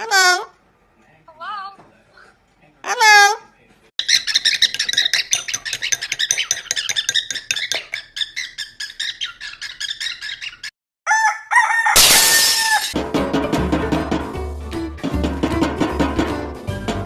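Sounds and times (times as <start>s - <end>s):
parrot chattering calls: 4.0s - 10.7s.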